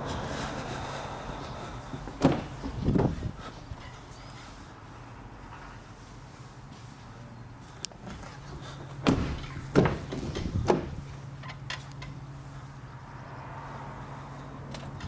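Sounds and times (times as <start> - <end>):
car doors opening and shutting: 1.9 - 3.4, 7.9 - 12.1
heavy door knocks: 2.1 - 3.2, 9.0 - 11.1.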